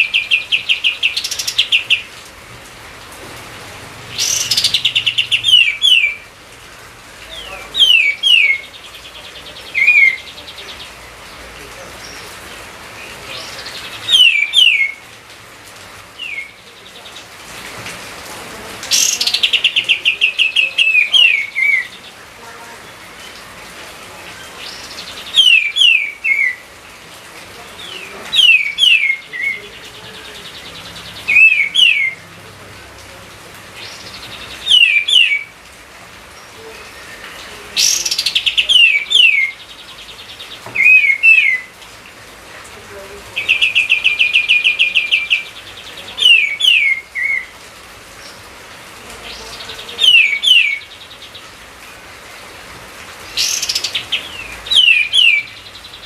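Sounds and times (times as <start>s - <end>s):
songbird whistling: 14.1s - 15.0s, 34.7s - 35.5s, 40.8s - 41.7s.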